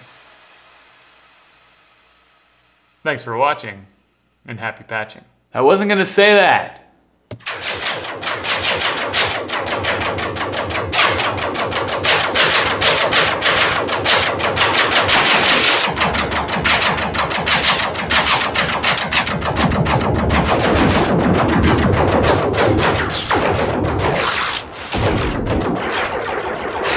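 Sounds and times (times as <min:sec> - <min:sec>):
synthesizer laser-zap pulses: 0:07.4 - 0:26.9
low rumble: 0:13.5 - 0:26.9.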